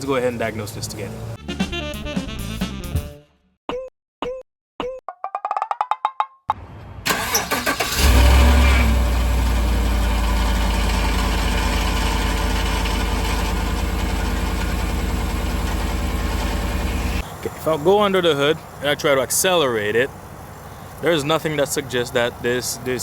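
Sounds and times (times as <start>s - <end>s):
truck engine idling: 6.6s - 23.0s
truck engine cranking: 6.8s - 23.0s.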